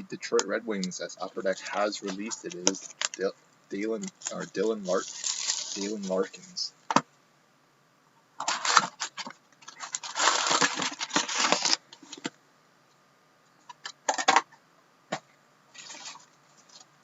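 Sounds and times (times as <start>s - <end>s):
plastic shrink wrap ripping: 4.0s - 6.1s, 8.4s - 11.8s.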